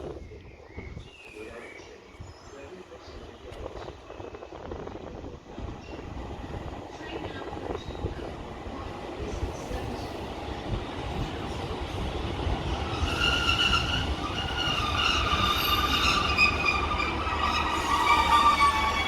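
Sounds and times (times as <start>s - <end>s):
train rumbling along track: 0.0s - 19.0s
wheel or brake squeal: 12.9s - 19.0s.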